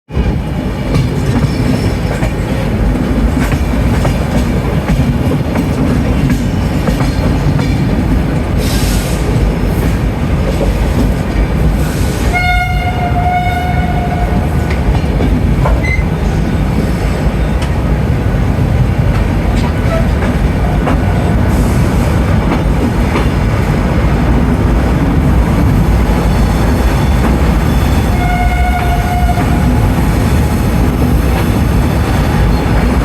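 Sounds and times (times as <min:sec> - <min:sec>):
train rumble and wheel clatter: 0:00.1 - 0:33.0
air hiss: 0:08.6 - 0:09.4
train horn: 0:12.2 - 0:14.7, 0:27.0 - 0:29.8.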